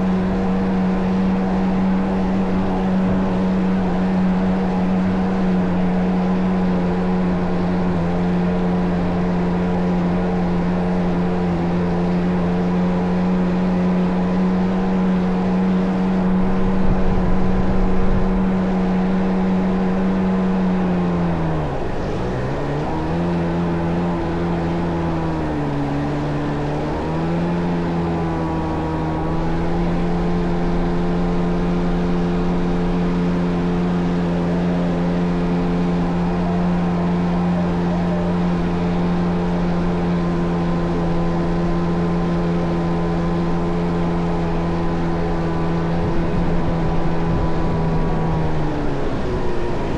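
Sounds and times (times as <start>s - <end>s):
jet ski engine running: 0.0s - 49.9s
low rumble: 16.1s - 25.8s.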